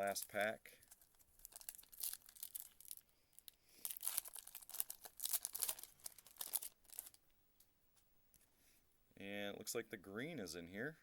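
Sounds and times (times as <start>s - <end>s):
wrapper tearing and crinkling: 0.0s - 3.1s, 3.8s - 7.2s.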